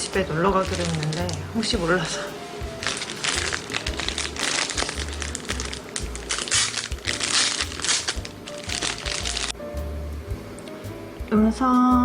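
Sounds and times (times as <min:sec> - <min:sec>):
plastic packaging crinkling: 0:00.0 - 0:09.6
background music with bass: 0:00.0 - 0:12.0.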